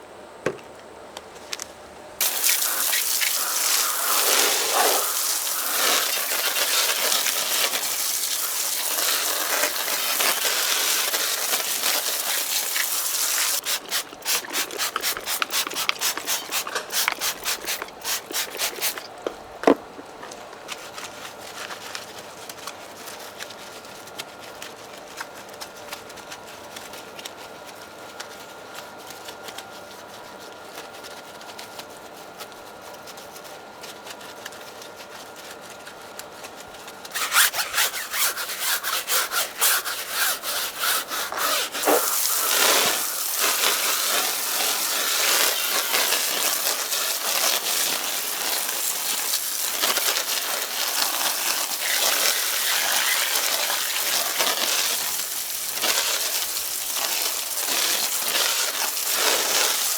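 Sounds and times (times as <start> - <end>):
brush scrubbing car tyre: 2.2 - 19.1, 37.1 - 59.9.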